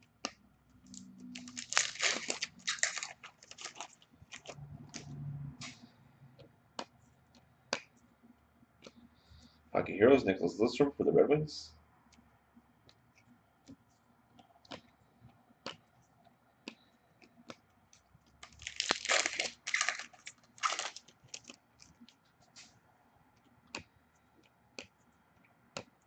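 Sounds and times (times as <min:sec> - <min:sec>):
wrapper tearing and crinkling: 0:00.9 - 0:04.6, 0:18.4 - 0:21.9
cards clicking and tapping: 0:12.8 - 0:15.9, 0:23.4 - 0:25.0, 0:25.7 - 0:26.0.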